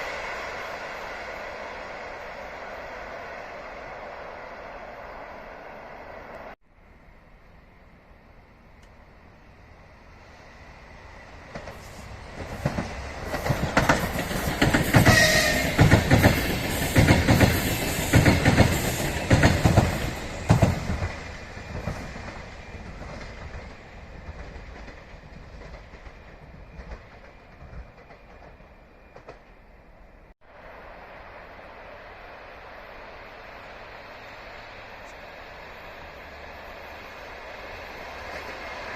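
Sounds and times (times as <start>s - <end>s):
train wheels clacking on rails: 11.2s - 29.6s.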